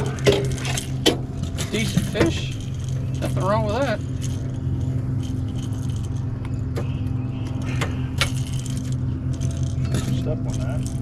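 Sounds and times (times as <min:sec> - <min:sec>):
light clicks and rattles: 0:00.0 - 0:11.0
low engine hum: 0:00.0 - 0:11.0.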